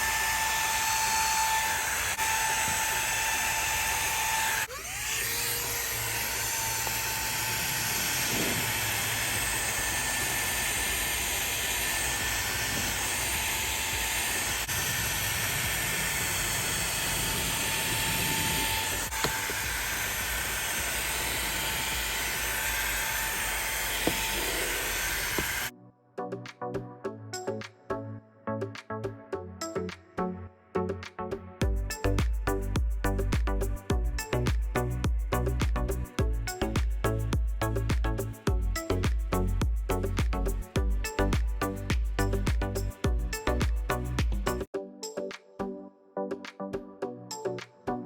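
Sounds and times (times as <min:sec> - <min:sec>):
handheld vacuum running: 0:00.0 - 0:25.7.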